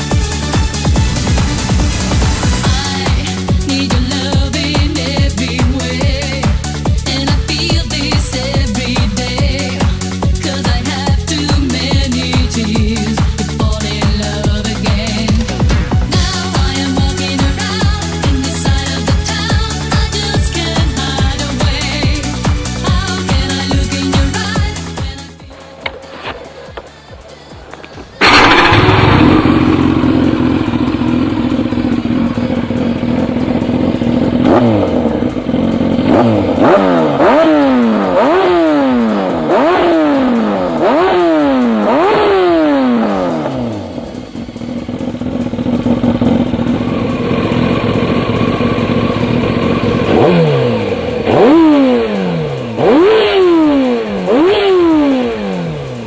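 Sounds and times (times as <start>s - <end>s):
motorcycle engine idling and revving: 0.0s - 56.0s.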